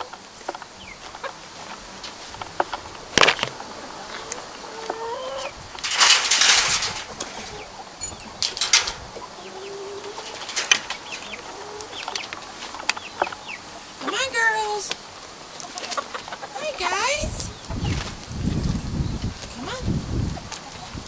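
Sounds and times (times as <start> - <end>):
chickens clucking: 0.0 - 18.8, 19.7 - 21.0
loud rustling: 5.7 - 9.3, 10.0 - 13.0.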